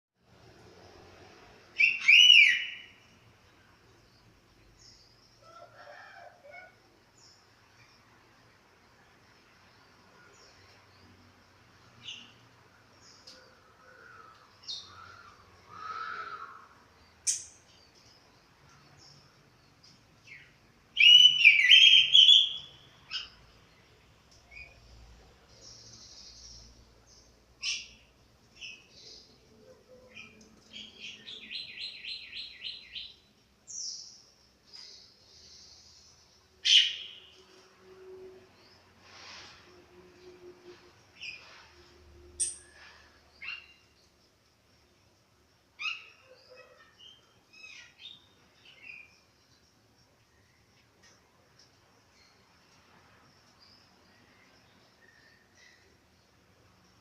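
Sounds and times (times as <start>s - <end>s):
bird chirps: 1.8s - 3.1s, 20.3s - 23.4s, 45.8s - 49.7s.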